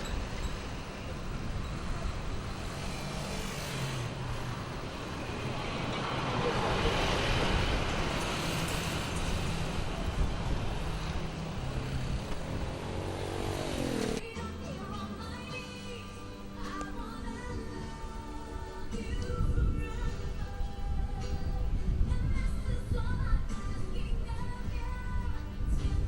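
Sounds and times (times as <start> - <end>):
vehicle engine hum: 0.0 - 19.6.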